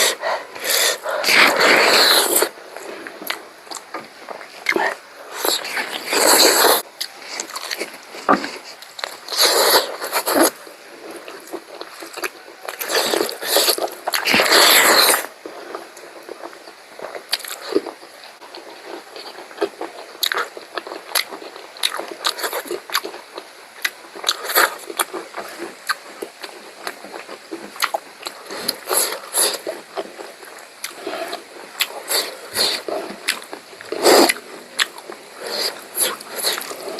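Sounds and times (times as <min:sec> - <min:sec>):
chewing and biting food: 0:00.0 - 0:36.9.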